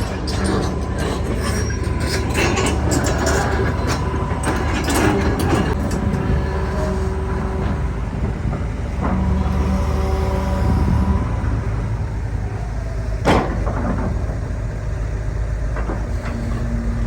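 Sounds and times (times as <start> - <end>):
metallic clanks and knocks: 0.0 - 9.5, 13.2 - 14.6
excavator engine drone: 0.0 - 17.0.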